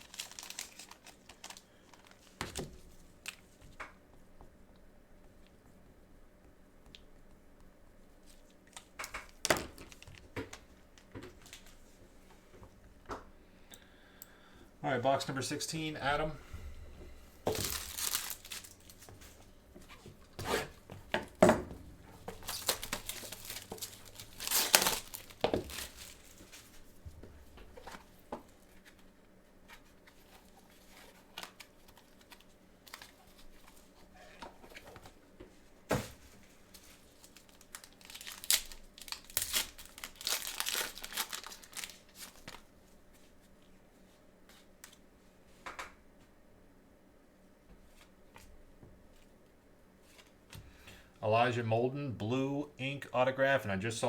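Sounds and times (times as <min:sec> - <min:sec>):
packaging torn and crinkled: 0:00.0 - 0:02.4, 0:17.5 - 0:19.1, 0:22.4 - 0:26.8, 0:30.8 - 0:33.8, 0:36.7 - 0:42.7.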